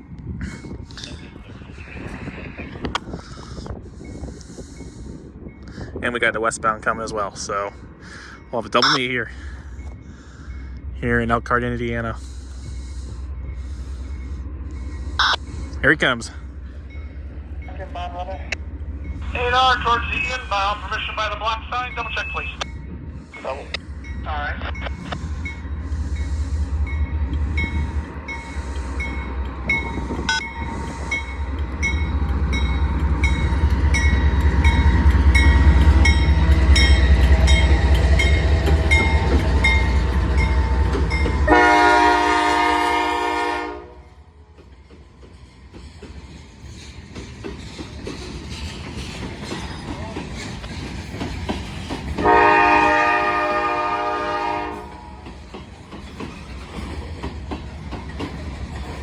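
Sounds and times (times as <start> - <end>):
diesel locomotive rumble: 0.0 - 59.0
locomotive air horn blast: 41.5 - 44.1, 52.2 - 55.2
wheels clicking over rail joints: 44.4 - 52.4, 54.9 - 59.0.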